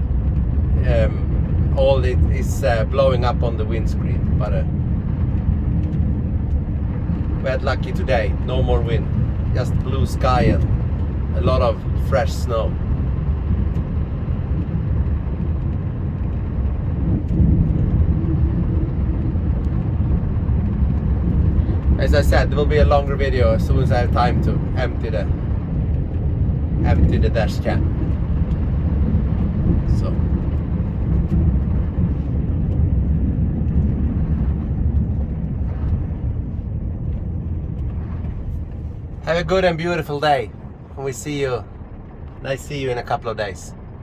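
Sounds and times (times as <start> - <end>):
vehicle engine rumbling: 0.0 - 44.0.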